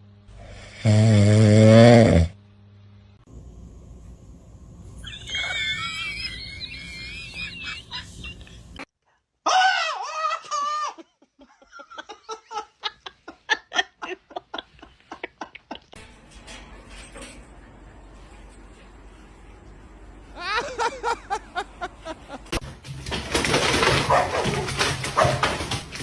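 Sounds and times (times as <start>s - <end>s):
rhythmic laughter: 5.1s - 8.8s, 10.3s - 16.0s, 20.4s - 22.6s.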